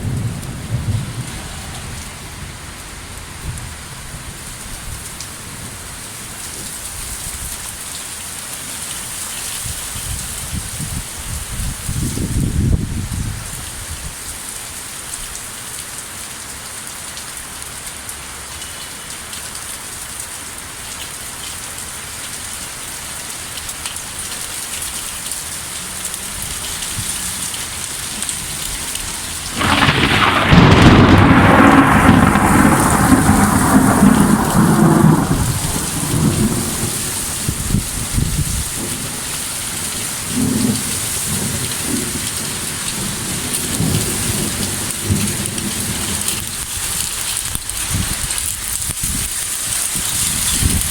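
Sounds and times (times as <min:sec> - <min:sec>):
thunder rumbling: 0:00.0 - 0:05.7, 0:27.9 - 0:46.8
steady rain: 0:00.0 - 0:50.9.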